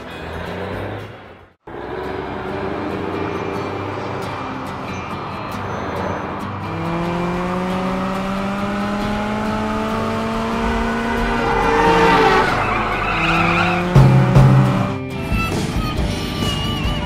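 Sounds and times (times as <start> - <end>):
sports car engine revving: 5.4 - 15.1
tyres squealing: 7.9 - 16.8.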